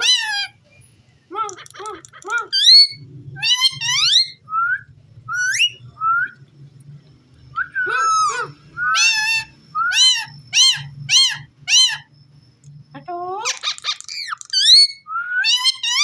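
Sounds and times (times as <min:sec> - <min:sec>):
parakeet whistling and chirping: 0:01.6 - 0:06.4, 0:07.5 - 0:12.0, 0:13.4 - 0:16.0.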